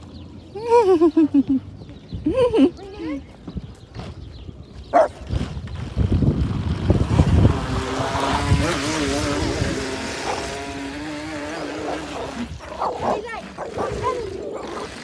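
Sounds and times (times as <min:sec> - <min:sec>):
wind rumbling on microphone: 0:01.7 - 0:15.0
electric boat motor whine: 0:06.2 - 0:15.0.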